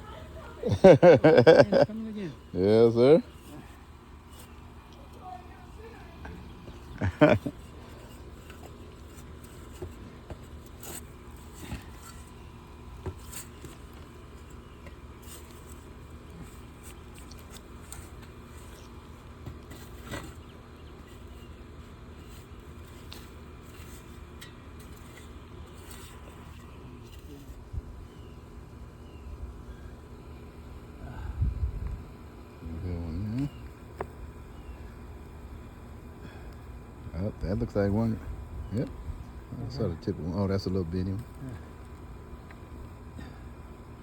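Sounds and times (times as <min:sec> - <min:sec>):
tool scraping through soil: 0:02.4 - 0:27.7.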